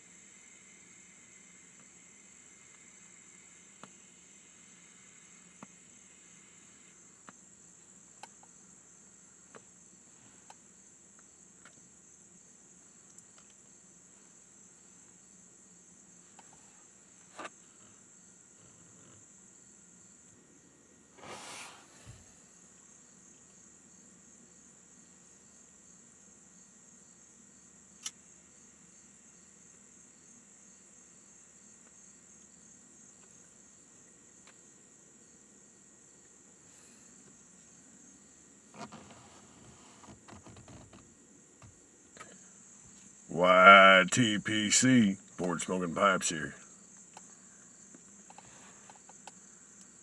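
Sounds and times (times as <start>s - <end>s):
insects chirring: 0.0s - 21.2s, 21.8s - 44.1s, 44.9s - 50.0s
rustle: 21.1s - 26.0s, 29.3s - 41.6s, 46.6s - 50.0s.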